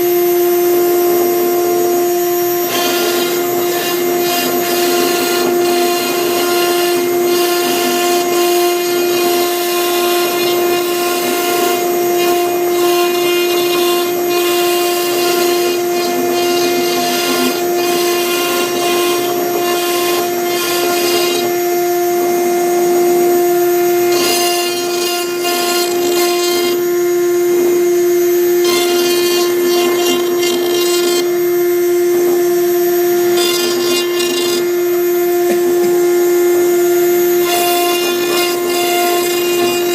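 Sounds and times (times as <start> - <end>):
router spindle whine: 0.0 - 39.9
bit scratching through wood: 2.6 - 21.5, 24.1 - 26.9, 28.6 - 31.3, 33.3 - 34.7, 37.4 - 39.9.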